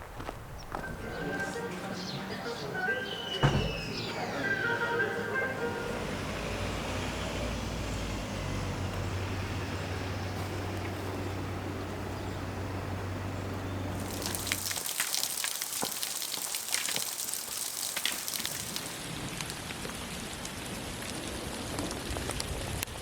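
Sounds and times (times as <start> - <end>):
rain pattering: 13.9 - 23.0.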